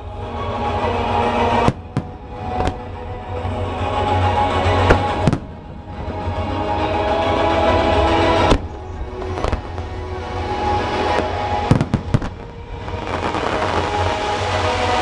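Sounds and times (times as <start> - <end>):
music playing: 0.0 - 15.0
fireworks bangs: 4.9 - 5.8, 8.3 - 10.0, 10.8 - 14.6.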